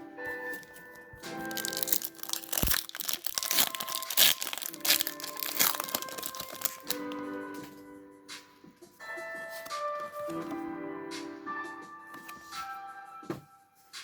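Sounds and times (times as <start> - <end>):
background music: 0.0 - 14.0
foil wrapper crinkling: 0.5 - 7.2.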